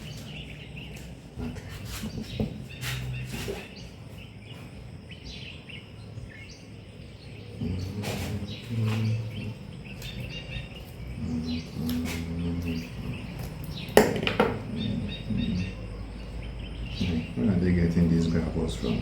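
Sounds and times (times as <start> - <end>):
birds chirping: 0.0 - 19.0
muffled low voices: 7.0 - 19.0.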